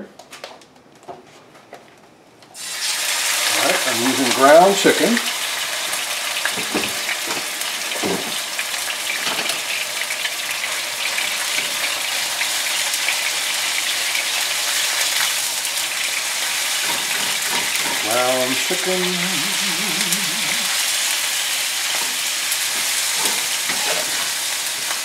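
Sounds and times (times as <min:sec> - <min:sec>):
meat sizzling in a frying pan: 0:02.6 - 0:25.0
spatula scraping a pan: 0:16.7 - 0:18.0, 0:21.8 - 0:25.0.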